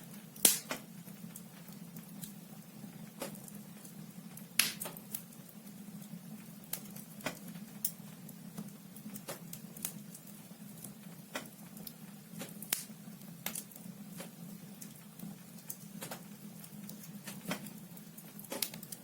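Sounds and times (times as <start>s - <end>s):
logs crackling in a fireplace: 0.0s - 19.0s.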